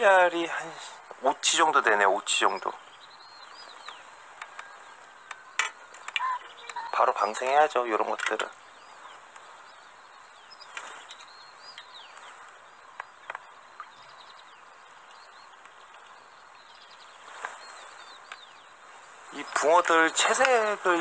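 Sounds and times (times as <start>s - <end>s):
small birds twittering: 0.0s - 21.0s
soft clicks: 3.8s - 6.8s, 18.2s - 18.5s.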